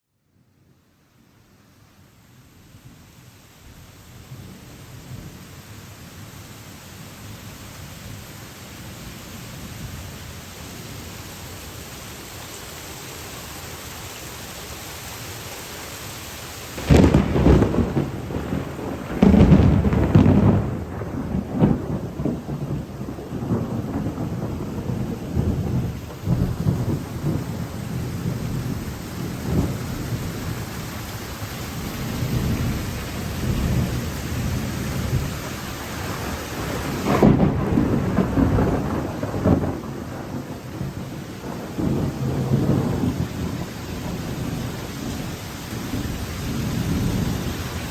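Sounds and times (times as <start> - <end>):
rain hissing: 1.4 - 47.9
thunderclap and rolling thunder: 16.8 - 47.9.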